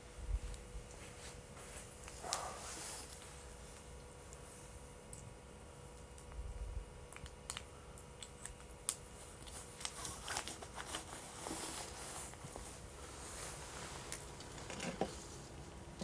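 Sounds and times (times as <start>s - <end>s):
wood fire popping and snapping: 5.9s - 10.6s.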